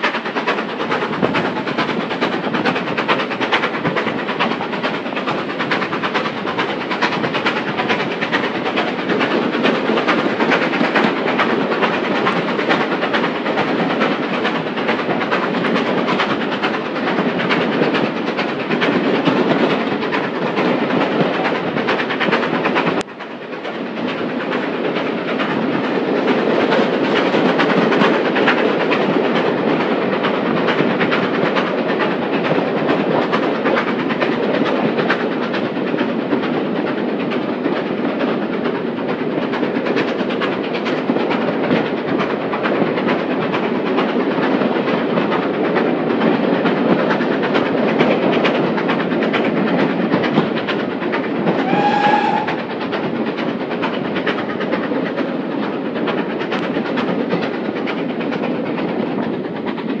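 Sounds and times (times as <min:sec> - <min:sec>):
train rolling rumble: 0:00.0 - 1:00.0
steam train whistle: 0:51.6 - 0:52.6.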